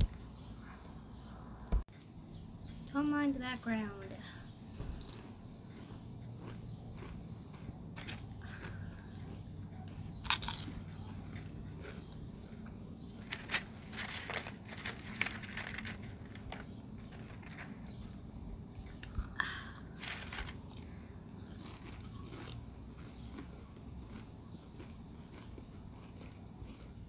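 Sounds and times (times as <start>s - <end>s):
person crunching snack food: 5.0s - 18.2s, 18.9s - 27.0s.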